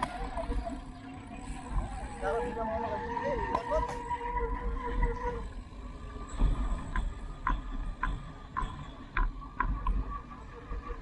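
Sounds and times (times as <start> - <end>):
bicycle ticking: 0.0 - 11.0.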